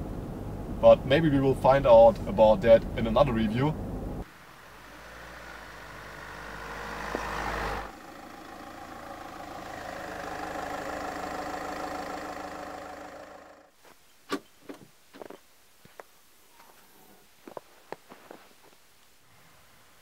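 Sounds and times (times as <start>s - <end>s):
diesel engine running: 1.5s - 13.8s.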